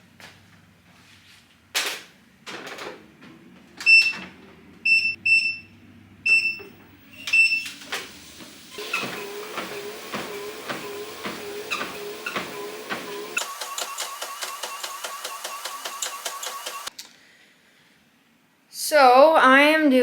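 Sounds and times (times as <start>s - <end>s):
machine running with pulsing sound: 8.1s - 16.9s.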